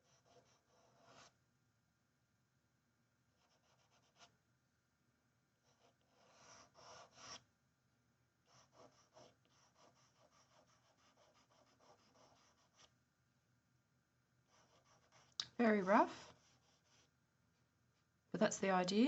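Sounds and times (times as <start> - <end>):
pencil scratching on paper: 0.0 - 1.3, 3.4 - 4.3, 5.6 - 7.4, 8.5 - 12.9, 14.5 - 17.1.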